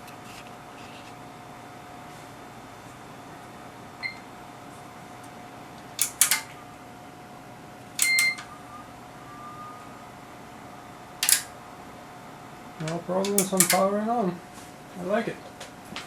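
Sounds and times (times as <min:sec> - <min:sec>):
equipment clicks and knocks: 0:06.0 - 0:06.5, 0:08.0 - 0:08.5, 0:11.2 - 0:11.5, 0:12.8 - 0:13.9
short electronic beeps: 0:08.0 - 0:10.0
faint high tone: 0:08.2 - 0:10.2.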